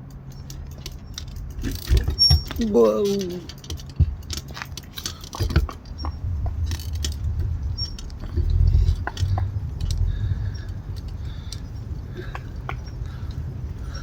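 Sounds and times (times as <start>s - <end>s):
bicycle rattling and jangling: 0.0s - 14.0s
low rumble: 4.0s - 14.0s.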